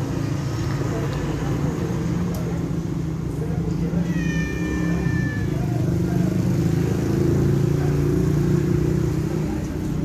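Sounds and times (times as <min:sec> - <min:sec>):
cat meowing: 0:03.9 - 0:06.3.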